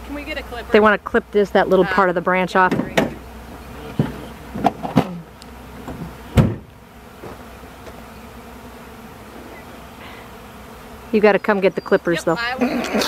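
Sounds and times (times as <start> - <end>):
bee swarm buzzing: 0.0 - 13.0
loud thump: 2.7 - 3.2, 5.9 - 7.4
short knocks: 5.8 - 7.4.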